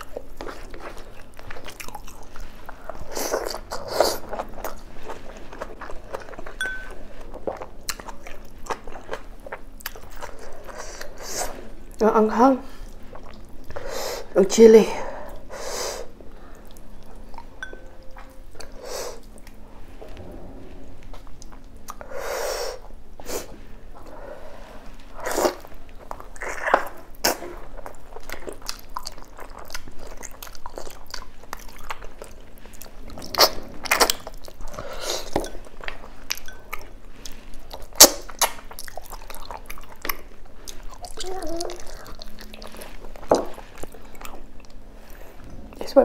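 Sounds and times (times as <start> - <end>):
chewing and mouth sounds: 0.0 - 12.0, 12.8 - 13.8, 25.0 - 45.8.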